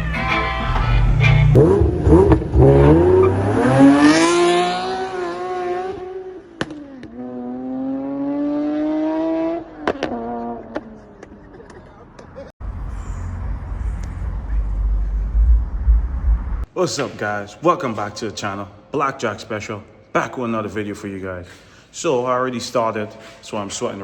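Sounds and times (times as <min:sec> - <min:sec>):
car engine accelerating: 0:00.0 - 0:11.4, 0:12.6 - 0:16.7.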